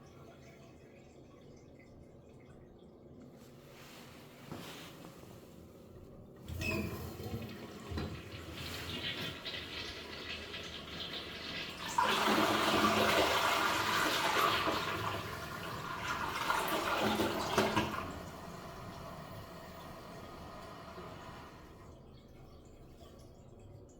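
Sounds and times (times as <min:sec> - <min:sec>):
toilet flushing: 0:06.4 - 0:23.9.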